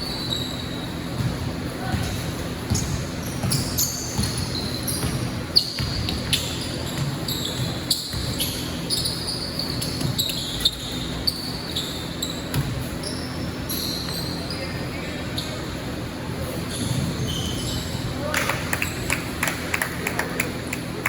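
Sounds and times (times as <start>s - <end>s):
sneaker squeaks: 0.0s - 19.4s
basketball bouncing on court: 0.1s - 14.4s.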